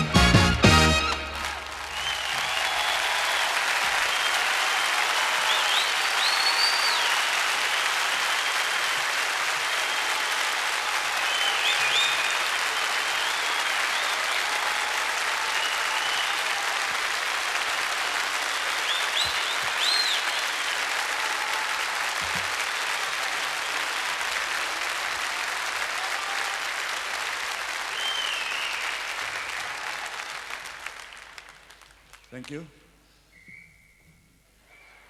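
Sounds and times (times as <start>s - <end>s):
audience applauding: 0.0s - 32.7s
whistles: 1.9s - 8.9s, 11.2s - 14.5s, 15.5s - 16.5s, 18.5s - 20.9s, 27.9s - 29.7s, 33.2s - 35.0s.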